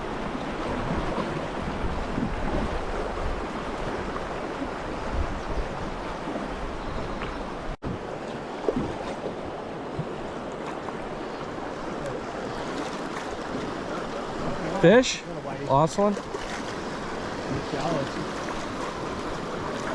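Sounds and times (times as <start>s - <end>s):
wind rumble on microphone: 0.0s - 8.1s
river water rushing and splashing: 0.0s - 19.9s.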